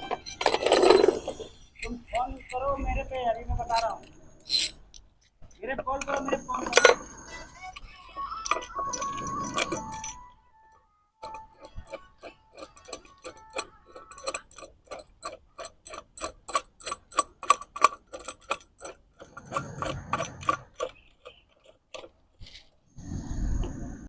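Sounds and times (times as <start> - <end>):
metal bolts clicking: 0.0 - 10.3, 11.2 - 22.7
rustling handling noise: 11.2 - 22.9.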